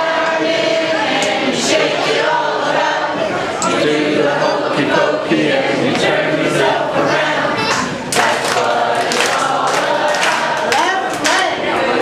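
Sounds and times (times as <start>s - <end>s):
crowd noise: 0.0s - 12.0s
group of voices singing: 0.0s - 12.0s.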